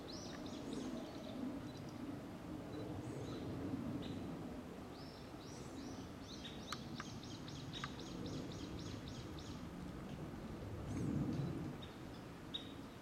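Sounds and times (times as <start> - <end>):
songbird singing: 0.0 - 2.0, 4.9 - 9.7, 10.9 - 13.0.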